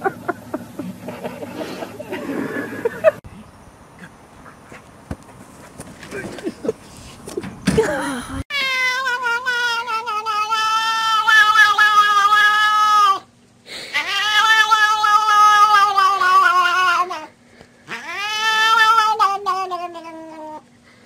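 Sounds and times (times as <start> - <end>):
cat yowling: 8.5 - 13.3, 13.9 - 17.3, 17.9 - 20.6.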